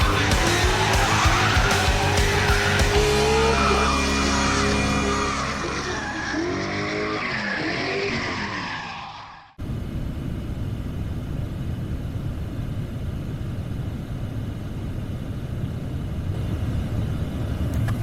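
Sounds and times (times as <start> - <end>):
car rumbling on the move: 0.0 - 9.0.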